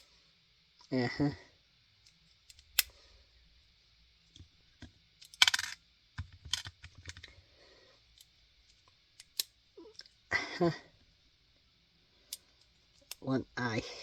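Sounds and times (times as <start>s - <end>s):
plastic pieces clicking: 5.2s - 7.4s, 9.2s - 10.1s.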